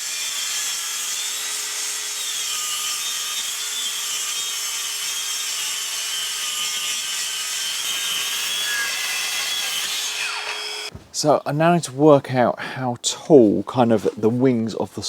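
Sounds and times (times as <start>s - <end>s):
track saw cutting plywood: 0.0s - 10.9s.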